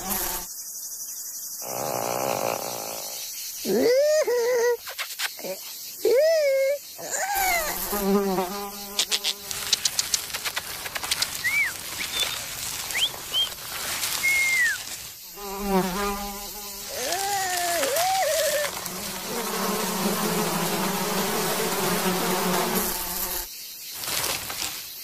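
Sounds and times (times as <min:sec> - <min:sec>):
cartoon insect buzzing voices: 0:05.4 - 0:09.7, 0:15.4 - 0:23.4
quick run of clicks: 0:09.5 - 0:12.4
short whistled chirps: 0:11.4 - 0:13.5, 0:14.2 - 0:14.9.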